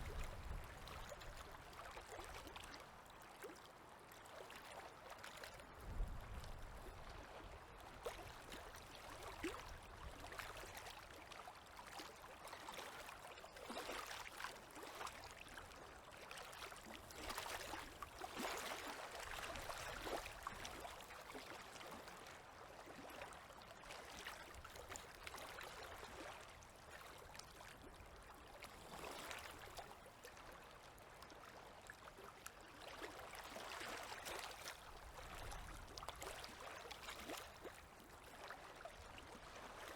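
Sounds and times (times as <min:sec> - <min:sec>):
waves lapping at shore: 0:00.0 - 0:39.9.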